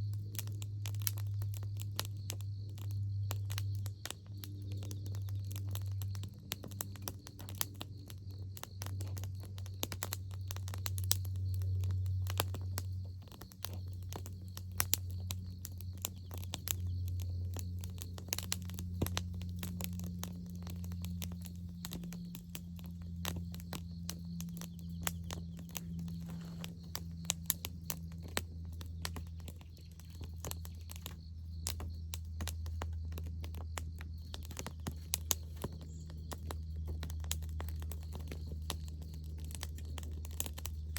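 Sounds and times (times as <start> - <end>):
campfire crackling and popping: 0.0 - 40.9
low hum: 10.4 - 40.9.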